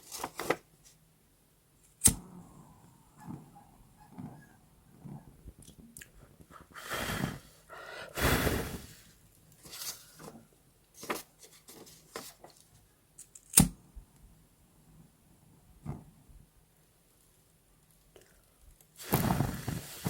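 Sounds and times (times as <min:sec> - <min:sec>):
paper rustling: 0:00.0 - 0:01.0, 0:09.6 - 0:10.4, 0:11.0 - 0:12.8.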